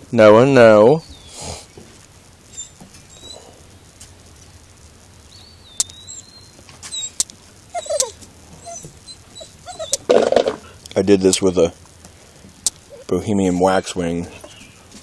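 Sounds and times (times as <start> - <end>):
small bird squeaking: 2.5 - 3.5, 5.3 - 10.2
sharp clicks: 5.8 - 6.0.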